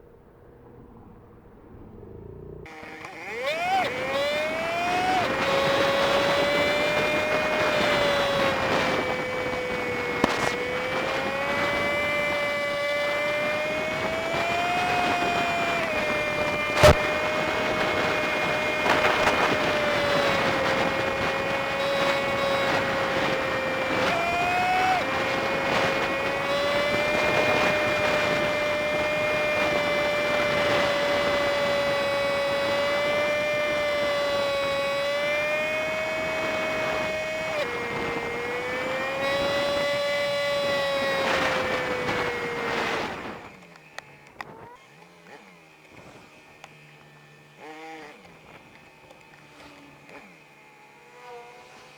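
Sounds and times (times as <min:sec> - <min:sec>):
faint hum: 0:00.0 - 0:03.2
sped-up engine high whine: 0:00.0 - 0:44.4
sharp click: 0:10.2 - 0:10.8.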